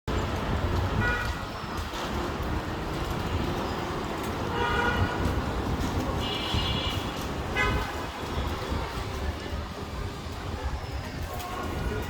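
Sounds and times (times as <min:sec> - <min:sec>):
road traffic rumble: 0:00.0 - 0:12.0
vehicle horn toots: 0:06.2 - 0:08.0.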